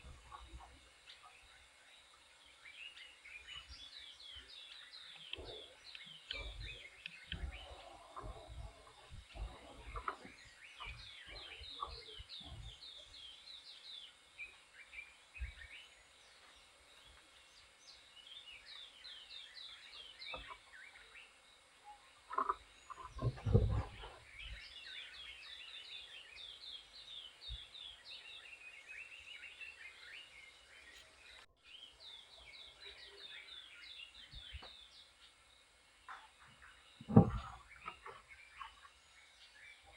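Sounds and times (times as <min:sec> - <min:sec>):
small birds chirping: 0:00.0 - 0:39.9
low thumps: 0:23.0 - 0:24.2, 0:37.0 - 0:38.1.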